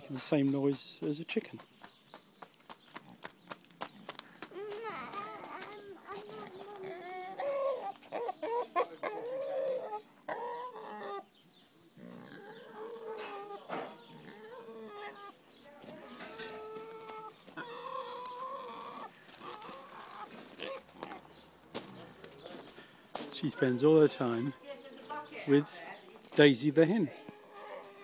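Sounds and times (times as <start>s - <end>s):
pig making clucking calls: 4.0s - 11.3s, 11.9s - 15.4s, 16.0s - 22.7s.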